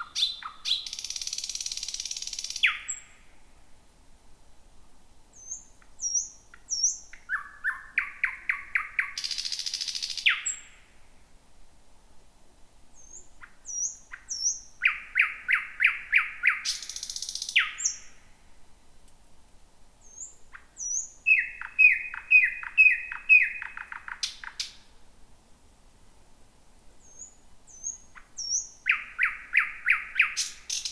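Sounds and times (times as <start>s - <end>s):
nightingale singing: 0.0s - 3.3s, 5.3s - 10.9s, 12.9s - 18.3s, 20.0s - 24.9s, 27.0s - 30.9s.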